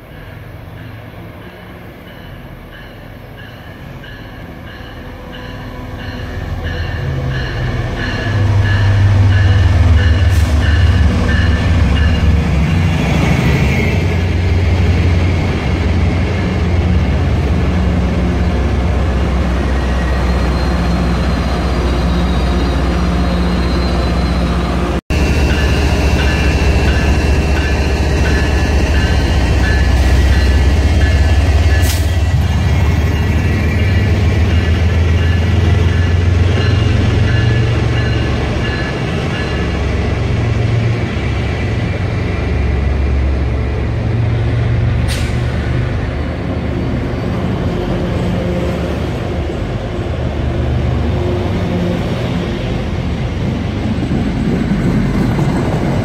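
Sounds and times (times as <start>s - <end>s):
train coaches clattering: 0.0s - 42.7s
locomotive bell ringing: 0.1s - 13.0s, 25.1s - 40.0s.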